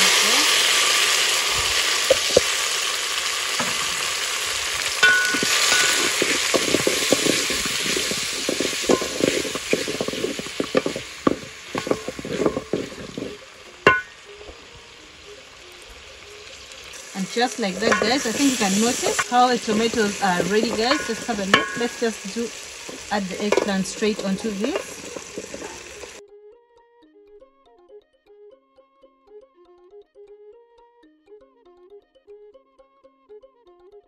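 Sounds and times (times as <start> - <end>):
vegetables sizzling in hot oil: 0.0 - 26.2
wooden spoon scraping a pan: 5.0 - 14.2, 16.9 - 26.2.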